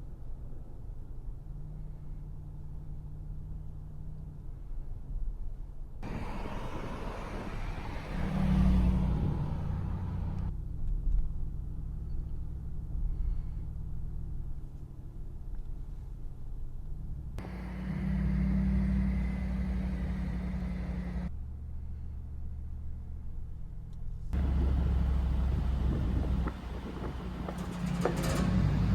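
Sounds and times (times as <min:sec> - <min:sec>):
car engine rumbling and accelerating: 0:06.0 - 0:28.9.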